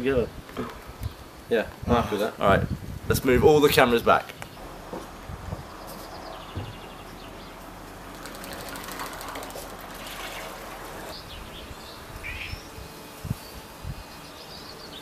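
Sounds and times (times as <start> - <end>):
faint bird chirps: 11.1 - 15.0.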